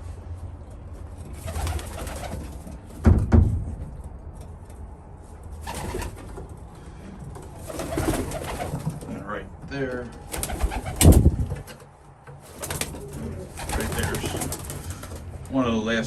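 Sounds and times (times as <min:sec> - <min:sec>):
pigeons cooing: 0:12.5 - 0:15.3.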